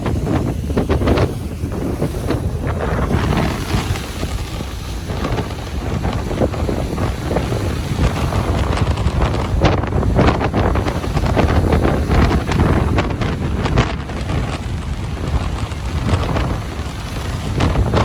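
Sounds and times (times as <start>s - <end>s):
ocean surf on a beach: 0.0s - 18.0s
wind buffeting microphone: 0.0s - 18.0s.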